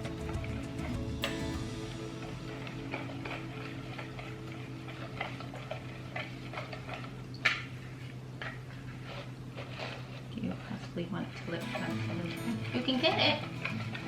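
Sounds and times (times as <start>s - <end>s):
low hum: 0.0s - 8.0s.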